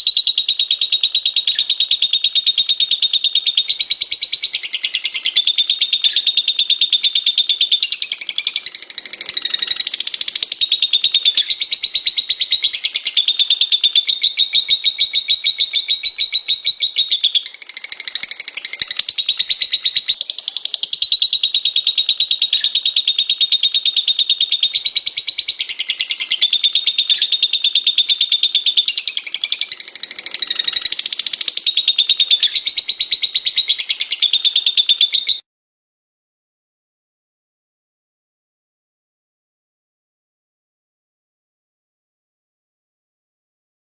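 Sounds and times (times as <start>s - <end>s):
lovebirds chattering: 4.4s - 20.1s, 24.0s - 35.3s.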